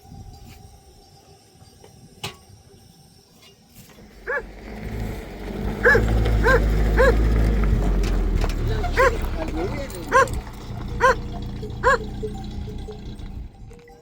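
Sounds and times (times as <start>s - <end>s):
dog barking: 4.3s - 4.5s, 5.8s - 7.3s, 8.8s - 9.3s, 10.0s - 12.1s.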